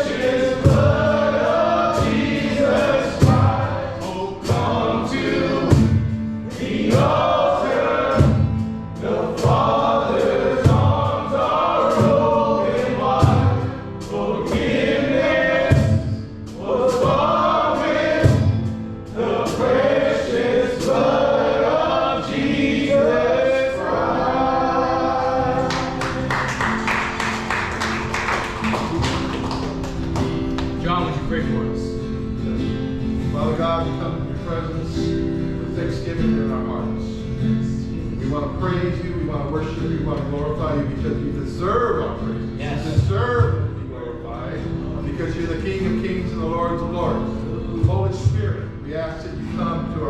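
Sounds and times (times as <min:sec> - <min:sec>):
voices singing together: 0:00.0 - 0:30.8
band playing: 0:00.0 - 0:32.0.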